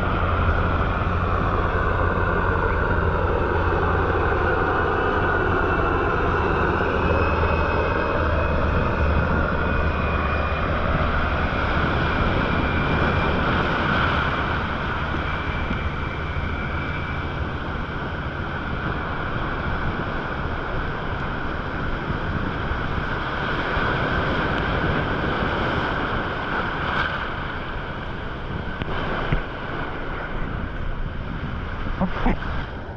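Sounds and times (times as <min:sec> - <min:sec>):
low hum: 0:00.0 - 0:32.9
ocean water rushing: 0:23.3 - 0:32.9.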